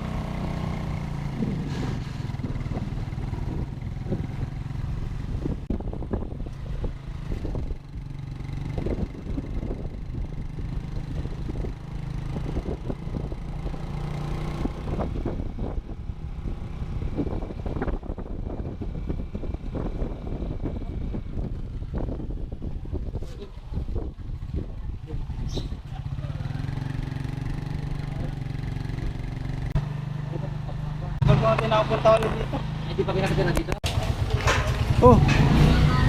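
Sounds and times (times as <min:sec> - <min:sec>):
motorcycle engine running: 0:00.0 - 0:36.0
knocks and rattles: 0:33.7 - 0:35.6.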